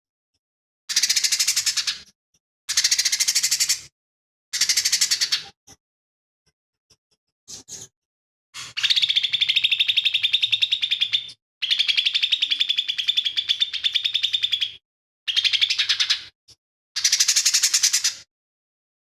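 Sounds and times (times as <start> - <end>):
bird singing rapid chattering notes: 8.7 - 16.3.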